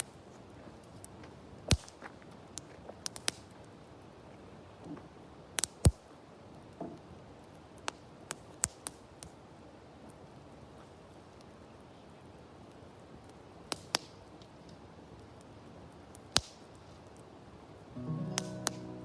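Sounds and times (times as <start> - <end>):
campfire crackling: 0.0 - 19.0
loud fire pops: 1.7 - 2.0, 13.6 - 14.2, 16.1 - 16.9.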